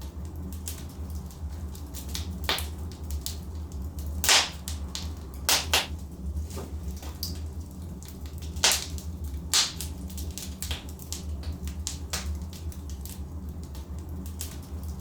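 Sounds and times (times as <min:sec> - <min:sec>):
fire crackling and popping: 0:00.0 - 0:15.0
low rumble of fire: 0:00.0 - 0:15.0.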